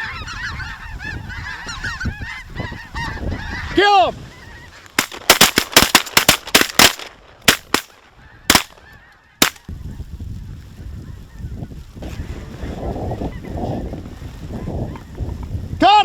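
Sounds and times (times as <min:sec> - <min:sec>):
shotgun fire: 0:05.0 - 0:07.9, 0:08.5 - 0:08.8.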